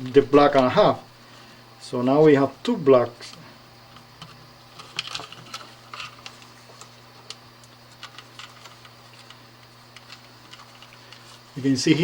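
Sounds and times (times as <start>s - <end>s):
steady low hum: 0.0s - 12.0s
electrical wires clicking and tapping: 3.2s - 12.0s.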